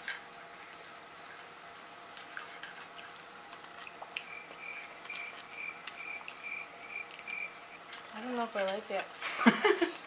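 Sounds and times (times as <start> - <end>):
wet mouth clicks chewing: 2.2 - 8.1.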